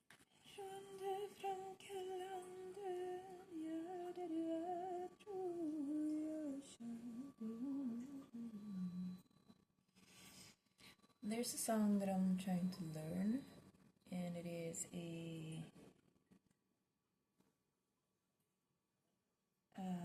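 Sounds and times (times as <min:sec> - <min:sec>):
woman humming a slow tune: 0:00.5 - 0:09.6.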